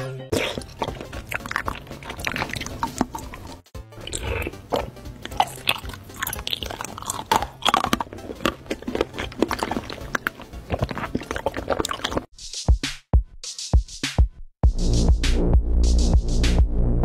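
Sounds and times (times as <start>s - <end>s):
background music: 0.0s - 12.3s
crunchy chewing: 0.3s - 12.3s.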